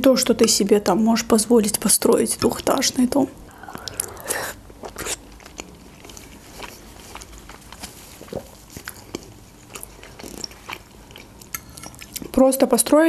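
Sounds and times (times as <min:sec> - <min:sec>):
mouth clicks: 0:03.5 - 0:05.2
person chewing food: 0:03.5 - 0:12.3.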